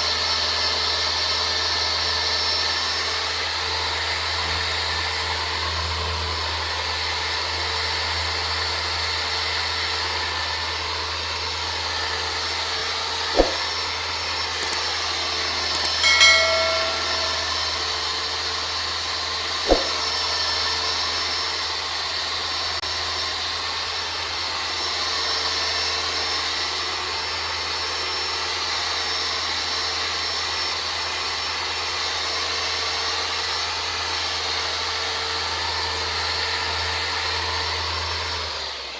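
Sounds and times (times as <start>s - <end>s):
sharp clicks: 14.6s - 14.8s, 15.8s - 16.1s
short metallic clatter: 15.8s - 17.9s.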